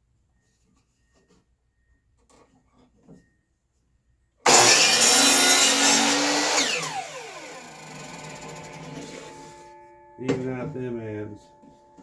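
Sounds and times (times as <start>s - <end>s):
power saw cutting wood: 4.5s - 9.6s.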